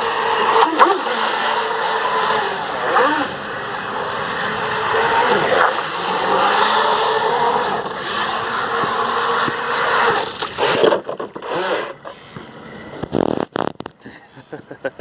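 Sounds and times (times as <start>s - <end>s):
short whines: 0.0s - 14.1s
boat jet drive and spray: 0.0s - 14.8s.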